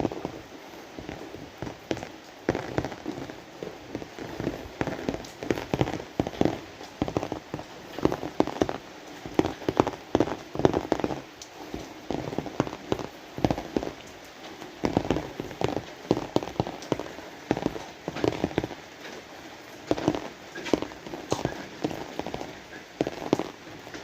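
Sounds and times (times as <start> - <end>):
large raindrops tapping: 0.0 - 24.0
rain falling: 0.0 - 24.0.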